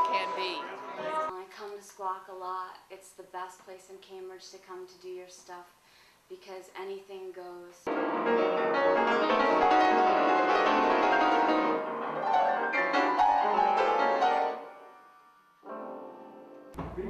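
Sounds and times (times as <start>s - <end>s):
piano music: 0.0s - 1.3s, 7.9s - 17.0s.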